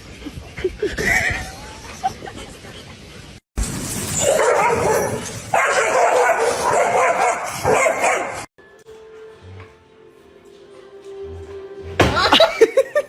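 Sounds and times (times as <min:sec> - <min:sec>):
dog barking and yelping: 0:04.2 - 0:08.5.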